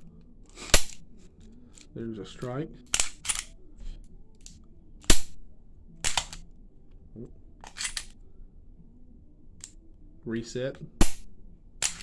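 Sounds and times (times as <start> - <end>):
pistol action metallic clicks: 0.7 - 1.0, 2.9 - 3.6, 6.0 - 6.4, 7.6 - 8.2, 11.0 - 12.0.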